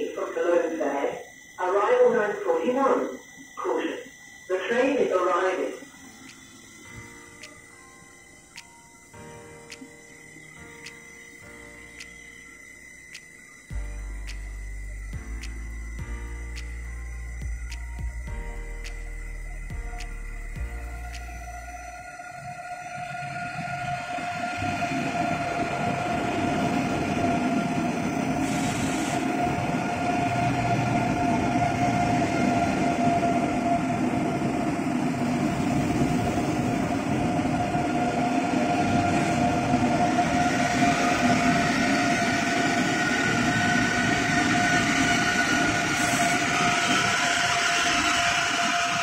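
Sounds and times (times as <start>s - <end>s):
train pulling into station: 0.0s - 49.0s
steady whine: 13.2s - 49.0s.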